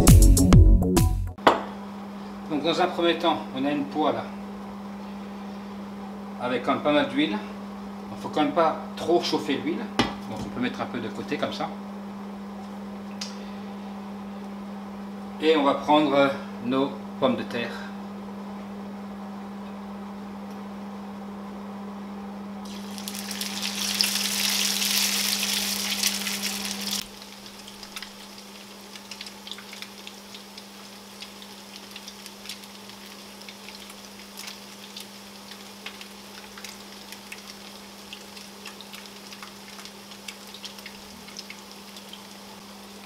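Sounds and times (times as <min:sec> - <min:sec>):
oil popping and crackling: 0:22.7 - 0:42.6
potato cakes sizzling in oil: 0:22.7 - 0:43.0.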